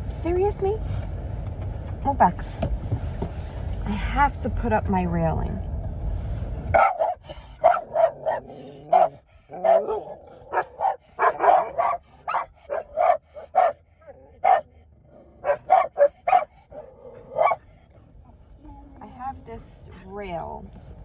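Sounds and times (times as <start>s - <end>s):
dogs barking: 6.7s - 18.5s.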